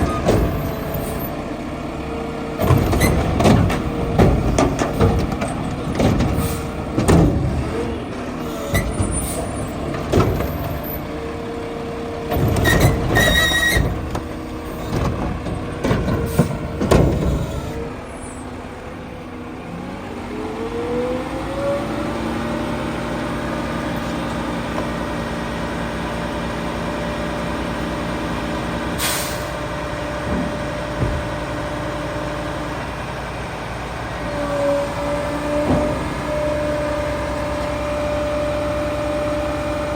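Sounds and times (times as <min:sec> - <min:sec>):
metal clanks and bangs: 0:00.0 - 0:01.3, 0:02.6 - 0:11.0, 0:12.3 - 0:17.8
diesel engine running and revving: 0:00.0 - 0:39.9.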